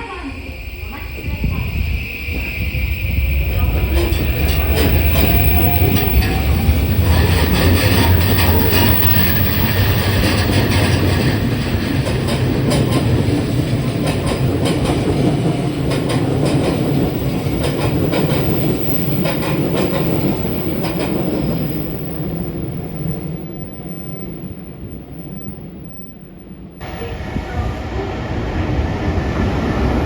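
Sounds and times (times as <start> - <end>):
train wheels clicking over rail joints: 1.2 - 23.8.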